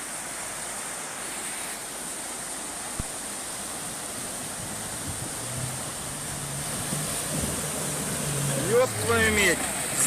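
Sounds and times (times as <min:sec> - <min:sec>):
road noise inside car: 0:03.8 - 0:10.0.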